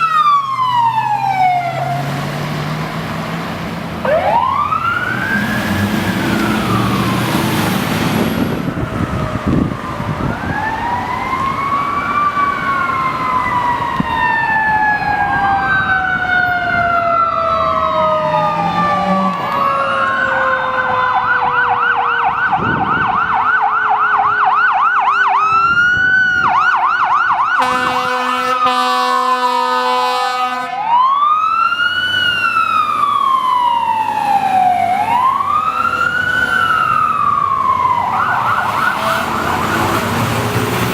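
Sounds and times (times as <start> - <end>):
electronic sirens wailing and yelping: 0.0 - 2.2, 4.0 - 40.9
mechanical siren winding down: 4.0 - 28.0, 30.9 - 40.9
air horn blast: 27.6 - 30.8, 38.8 - 40.2.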